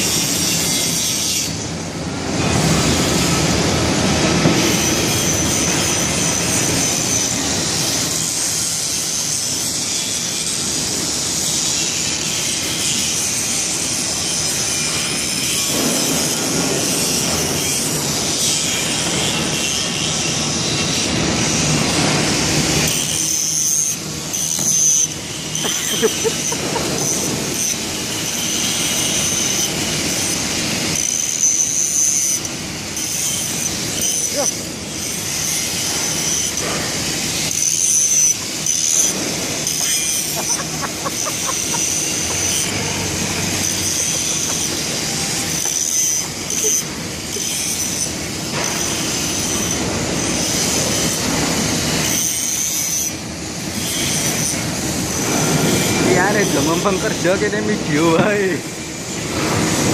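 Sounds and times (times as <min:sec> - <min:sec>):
high-pitched metallic squeal: 0:00.0 - 0:01.7, 0:02.4 - 0:59.9
industrial machinery noise: 0:00.0 - 0:59.9.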